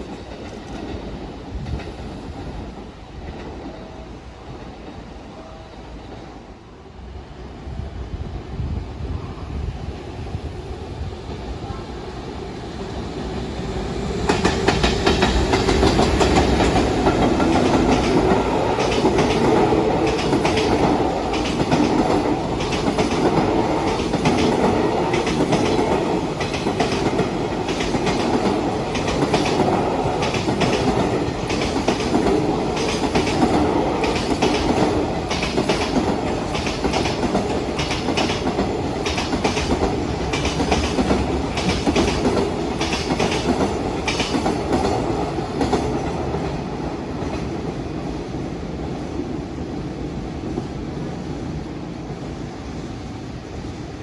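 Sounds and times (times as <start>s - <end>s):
freight train wheels clicking: 13.1s - 49.7s.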